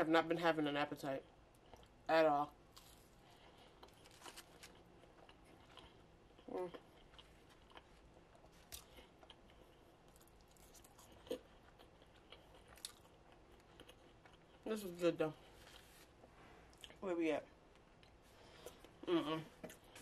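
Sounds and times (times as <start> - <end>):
chewing and mouth clicks: 3.6 - 14.7.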